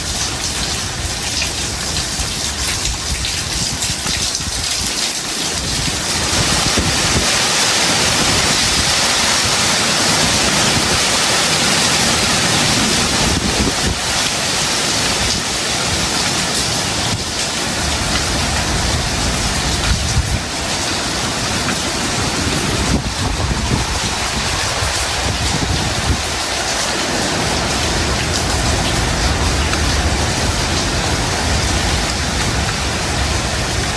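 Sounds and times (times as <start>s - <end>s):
heavy rain pouring: 0.0s - 33.9s
wind gusts rumbling: 0.0s - 33.9s.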